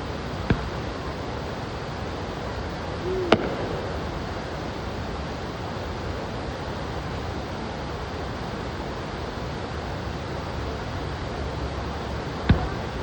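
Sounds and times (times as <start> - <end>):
steady rushing noise: 0.0 - 13.0
firework bang: 0.4 - 0.9, 3.1 - 4.7, 12.4 - 13.0.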